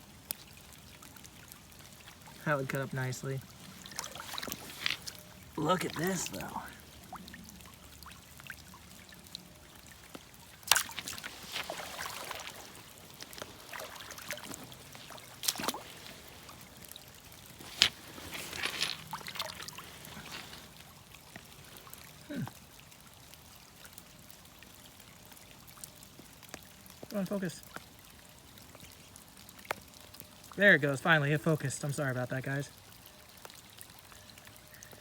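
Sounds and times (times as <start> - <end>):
creek water trickling: 0.0 - 35.0
brief rustle: 3.9 - 5.2, 17.6 - 20.7.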